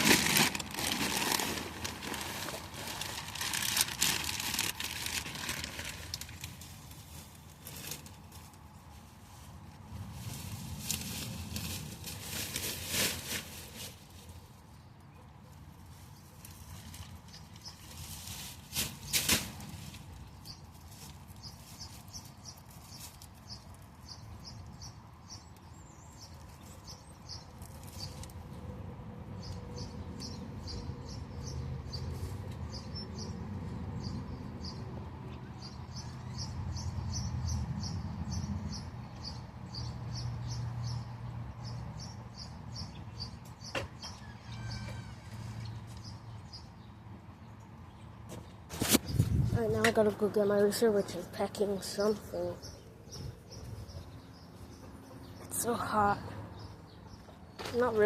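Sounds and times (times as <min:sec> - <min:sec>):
rustling handling noise: 0:00.0 - 0:14.7, 0:15.7 - 0:24.0
small birds chirping: 0:20.2 - 0:28.5, 0:29.4 - 0:44.9, 0:45.6 - 0:58.0.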